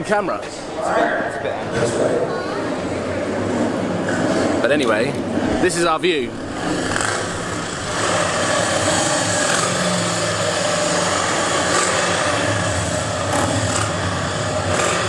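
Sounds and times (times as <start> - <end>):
motor vehicle engines running: 0.0 - 15.0.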